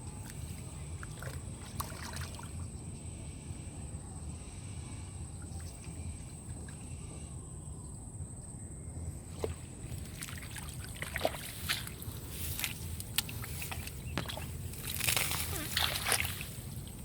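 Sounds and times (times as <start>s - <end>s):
water sloshing and splashing: 0.1s - 2.7s, 9.3s - 17.0s.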